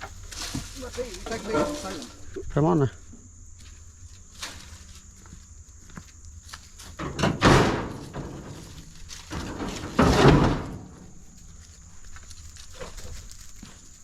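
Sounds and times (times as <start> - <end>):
scrap metal crashing into truck bed: 0.4 - 2.2, 7.0 - 11.0.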